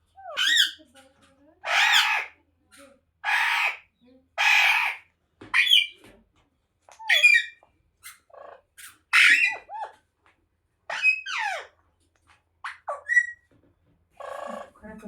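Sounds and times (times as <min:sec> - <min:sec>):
parrot squawking and chattering: 0:00.1 - 0:00.9, 0:01.6 - 0:06.0, 0:06.9 - 0:10.0, 0:10.9 - 0:11.8, 0:12.6 - 0:13.5, 0:14.1 - 0:14.8.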